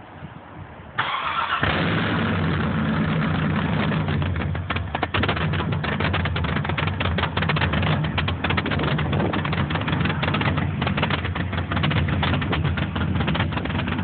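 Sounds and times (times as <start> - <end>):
choppy engine idle: 1.6 - 14.0.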